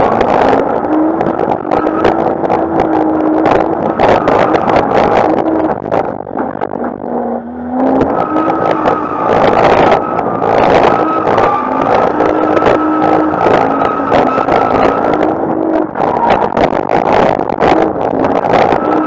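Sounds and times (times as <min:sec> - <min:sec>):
car engine on rev limiter: 0:00.0 - 0:19.0
tyre squeal: 0:08.1 - 0:15.3.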